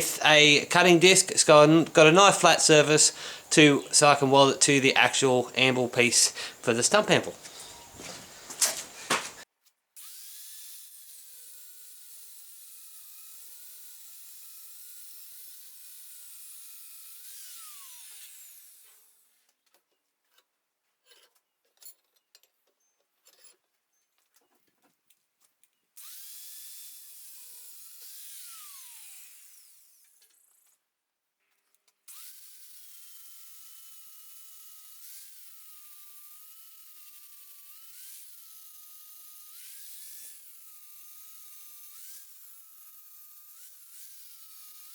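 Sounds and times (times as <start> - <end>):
angle grinder cutting steel: 0.0 - 9.4, 10.0 - 19.1, 26.0 - 30.2, 32.1 - 44.9
light knocks: 7.4 - 9.4.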